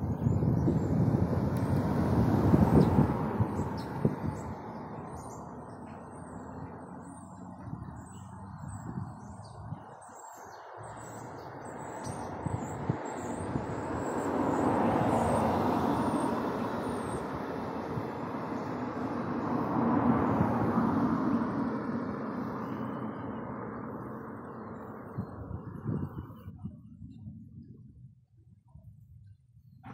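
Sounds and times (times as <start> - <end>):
small birds chirping: 2.6 - 19.6.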